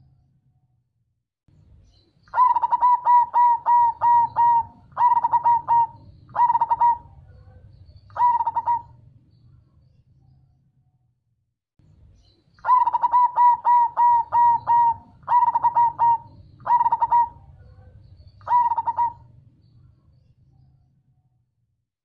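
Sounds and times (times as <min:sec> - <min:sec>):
dove cooing: 0:02.3 - 0:09.0, 0:12.6 - 0:19.4.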